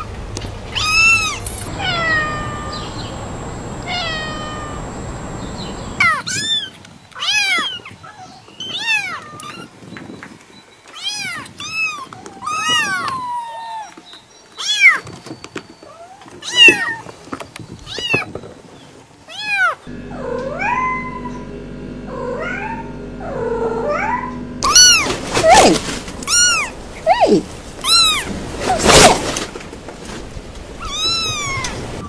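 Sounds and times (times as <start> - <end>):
steady low hum: 0.0 - 6.1, 19.9 - 30.7
cat meowing: 0.7 - 6.2, 23.9 - 28.3, 30.8 - 31.8.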